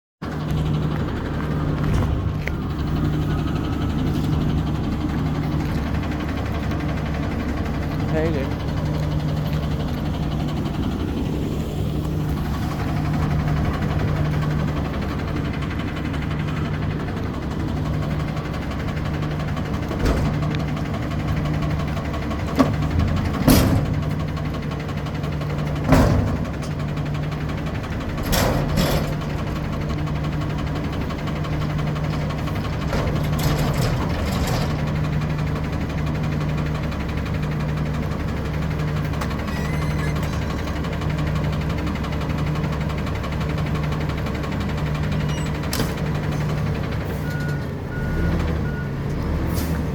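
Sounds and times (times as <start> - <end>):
garbage truck engine idling: 0.2 - 49.9.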